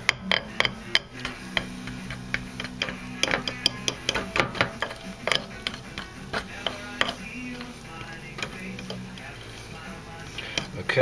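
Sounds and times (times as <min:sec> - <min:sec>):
utensil tapping bowl while stirring: 0:00.0 - 0:11.0.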